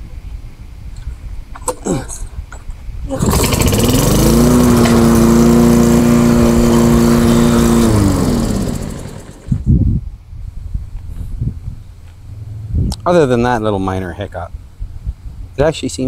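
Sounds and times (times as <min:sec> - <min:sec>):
lawnmower engine starting and running: 0:03.1 - 0:09.7.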